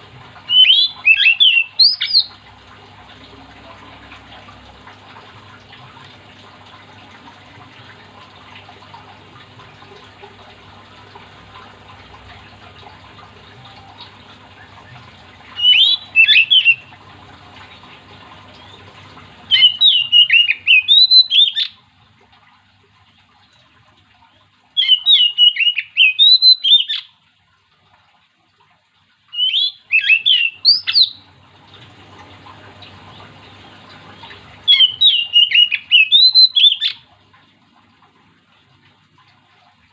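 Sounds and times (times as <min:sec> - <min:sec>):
bird singing: 0:00.5 - 0:02.3, 0:15.6 - 0:16.9, 0:19.5 - 0:21.8, 0:24.8 - 0:27.0, 0:29.4 - 0:31.2, 0:34.2 - 0:37.0.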